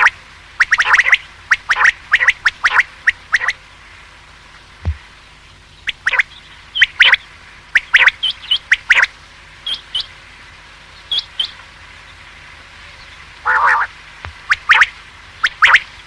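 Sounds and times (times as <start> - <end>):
quail calling: 0.0 - 3.6, 5.9 - 7.2, 7.8 - 9.1, 13.4 - 15.9.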